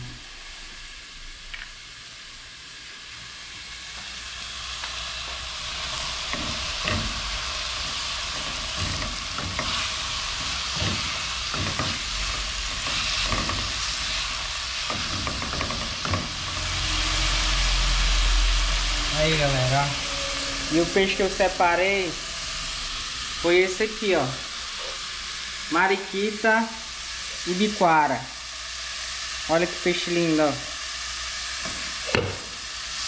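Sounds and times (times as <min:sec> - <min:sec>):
vegetables sizzling in oil: 0:00.0 - 0:33.0
low rumble: 0:05.5 - 0:23.8
spatula scraping a pan: 0:05.7 - 0:18.0.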